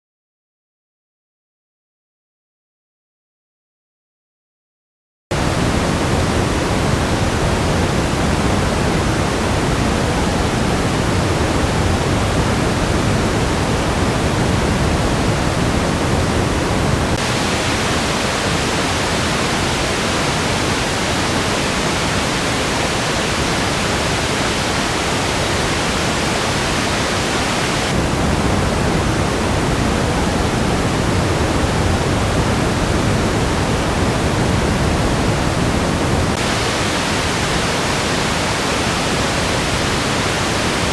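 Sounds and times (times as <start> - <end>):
band-limited test noise: 5.4 - 35.4.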